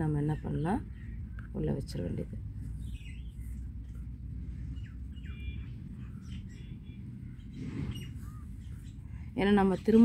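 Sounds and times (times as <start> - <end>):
low background noise: 0.0 - 10.0
bird chirps: 2.7 - 10.0.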